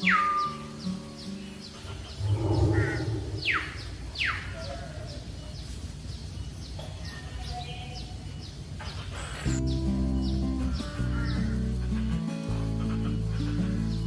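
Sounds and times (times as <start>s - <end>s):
birds chirping: 0.0s - 14.0s
low rumbling noise: 2.1s - 4.3s.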